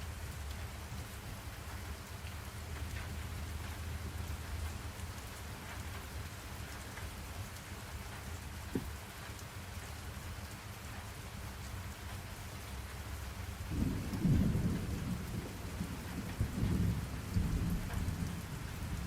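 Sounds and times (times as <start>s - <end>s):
steady rain falling: 0.0s - 19.0s
low knock: 8.7s - 8.9s.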